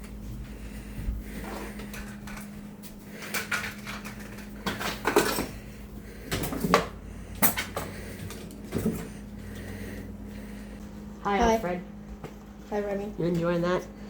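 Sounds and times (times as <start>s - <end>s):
steady low hum: 0.0s - 14.0s
knocks and clatters of dishes: 3.2s - 5.6s, 6.2s - 9.1s.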